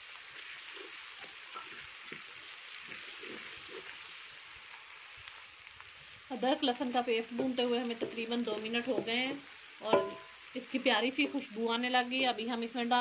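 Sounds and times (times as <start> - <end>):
onions sizzling in oil: 0.0 - 13.0
wooden spoon scraping a pot: 0.7 - 4.0.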